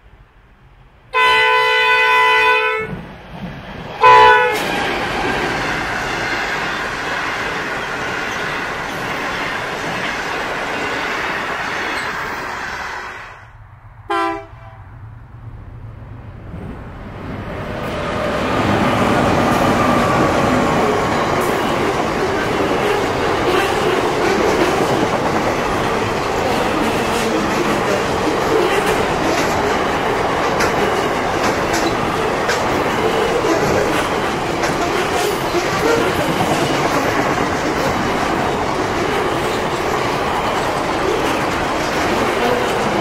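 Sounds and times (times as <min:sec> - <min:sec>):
freight train wheel and rail noise: 0:00.0 - 0:43.0
locomotive horn blasts: 0:01.1 - 0:03.0, 0:04.0 - 0:04.6, 0:14.1 - 0:14.8
train horn short toot: 0:01.2 - 0:03.0, 0:04.0 - 0:04.6, 0:14.1 - 0:14.8
passenger cars rolling past: 0:14.9 - 0:43.0.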